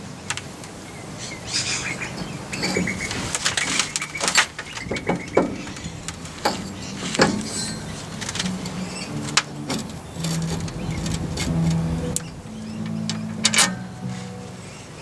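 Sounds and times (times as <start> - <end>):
birds chirping: 0.0 - 15.0
metal hand tools clinking: 2.2 - 14.2.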